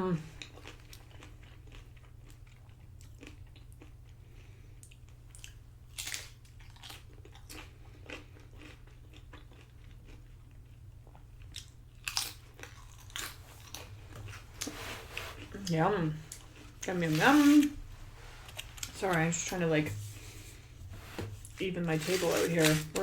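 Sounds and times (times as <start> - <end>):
crunching and chewing chips: 0.3 - 14.7.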